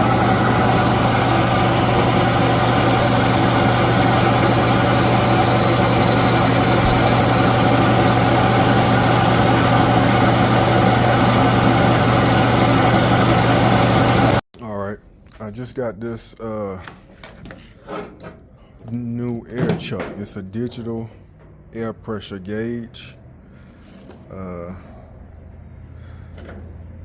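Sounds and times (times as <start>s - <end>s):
air compressor running: 0.0s - 14.4s.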